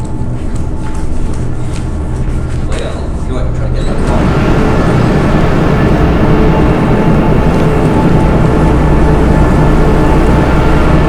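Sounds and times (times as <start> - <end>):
low rumble: 3.0 - 11.0.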